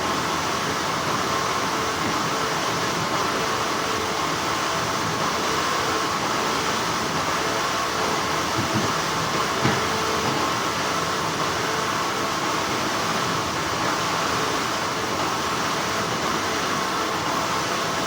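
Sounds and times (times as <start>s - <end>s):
factory machinery humming: 0.0s - 18.0s.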